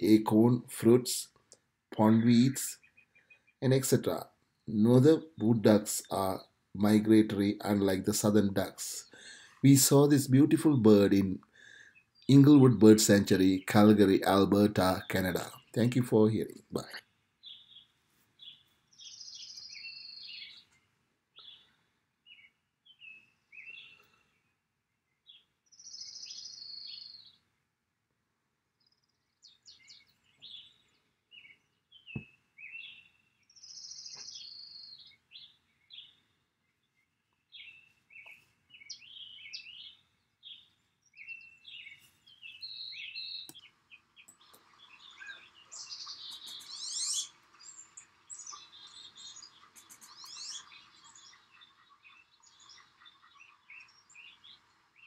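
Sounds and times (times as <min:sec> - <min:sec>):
birds chirping and calling: 0:02.0 - 0:24.4, 0:25.2 - 0:27.4, 0:29.0 - 0:55.0
fast high bird trills: 0:44.6 - 0:54.7.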